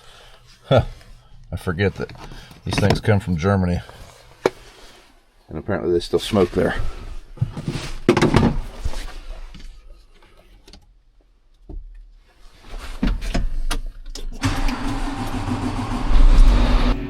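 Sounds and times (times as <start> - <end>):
tractor diesel engine starting: 14.4 - 17.0.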